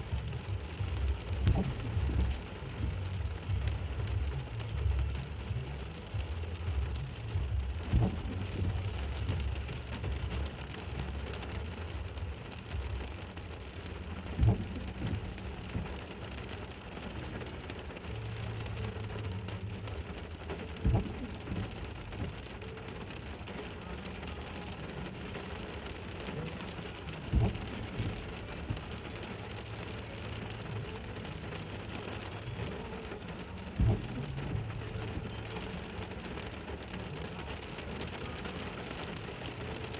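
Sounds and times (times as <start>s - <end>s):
steady rain: 0.0s - 39.9s
thunder rumbling: 27.0s - 30.8s, 33.7s - 35.9s.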